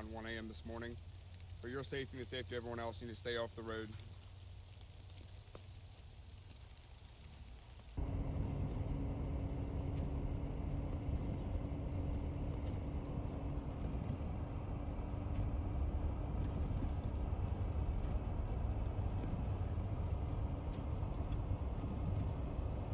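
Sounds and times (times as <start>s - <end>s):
car engine and road noise: 8.0s - 22.9s
steady hum: 8.0s - 22.9s.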